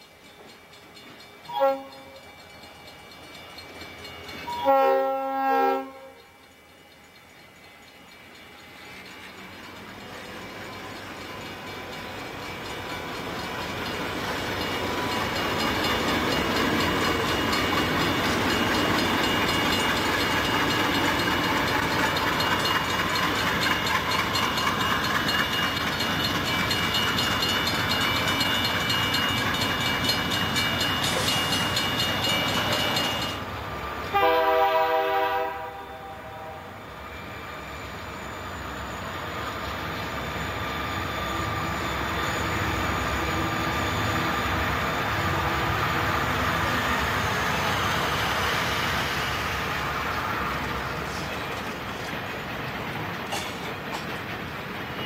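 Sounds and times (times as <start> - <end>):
freight train rumbling: 0.0 - 55.0
train approaching rumble: 0.0 - 55.0
locomotive air horn blast: 1.6 - 2.0, 4.6 - 6.2, 34.1 - 36.7.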